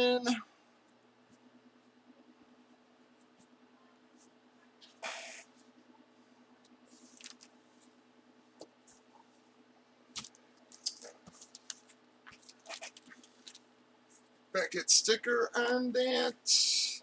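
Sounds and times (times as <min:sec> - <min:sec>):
trading cards rustling: 0:06.9 - 0:07.5, 0:10.2 - 0:14.3.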